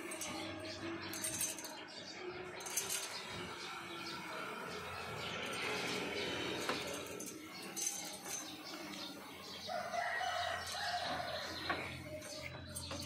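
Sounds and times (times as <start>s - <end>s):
rooster crowing: 9.6s - 11.7s.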